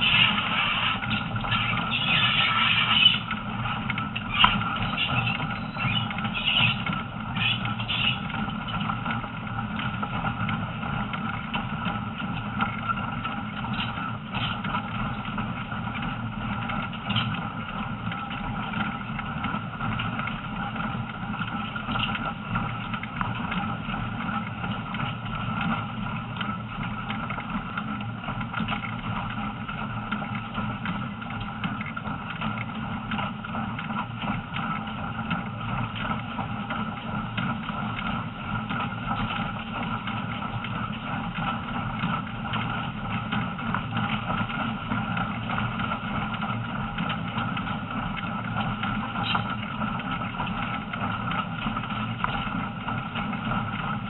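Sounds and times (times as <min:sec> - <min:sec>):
constant hum: 0:00.0 - 0:54.0.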